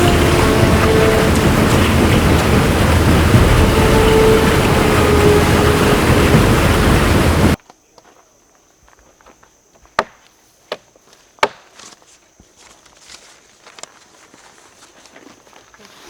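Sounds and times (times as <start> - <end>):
loud rushing noise: 0.0 - 7.6
footsteps on woodland trail: 7.7 - 16.0.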